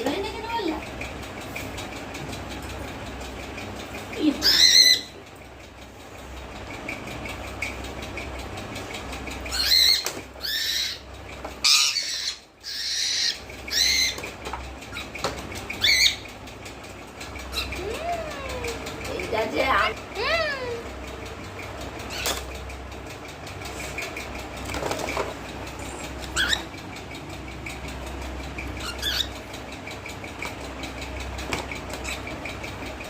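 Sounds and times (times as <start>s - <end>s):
parrot high-pitched calls: 4.4s - 5.2s, 9.5s - 14.3s, 15.8s - 16.3s, 17.5s - 19.0s, 26.3s - 26.7s, 28.7s - 29.4s.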